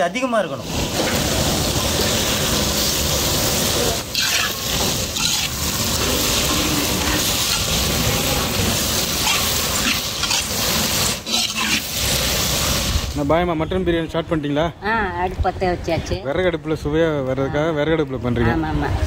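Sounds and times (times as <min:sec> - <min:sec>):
vegetables sizzling in hot oil: 0:00.1 - 0:13.4
metal ladle scraping pan: 0:04.1 - 0:08.2, 0:08.8 - 0:12.6.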